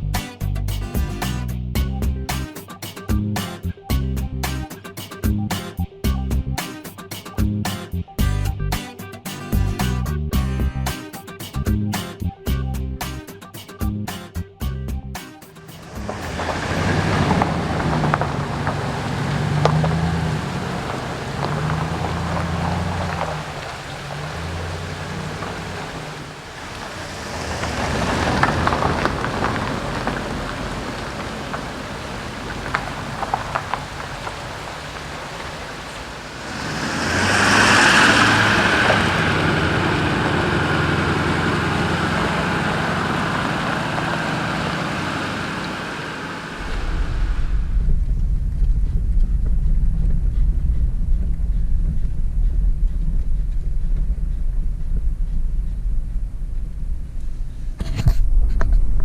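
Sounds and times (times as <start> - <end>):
vehicle engine humming: 0.0 - 2.5, 14.4 - 58.4
loud rushing noise: 15.7 - 33.1, 34.8 - 53.1
tyres crunching on gravel: 15.8 - 47.2.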